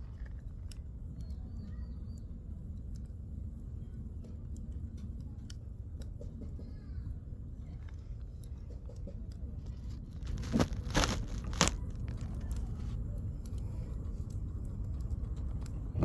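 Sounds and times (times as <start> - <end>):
campfire crackling: 9.3 - 16.0.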